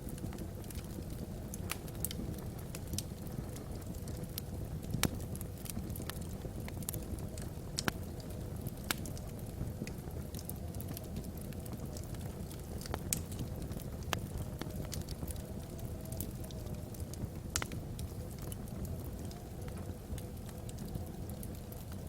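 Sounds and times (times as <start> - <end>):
logs crackling in a fireplace: 0.0 - 22.0.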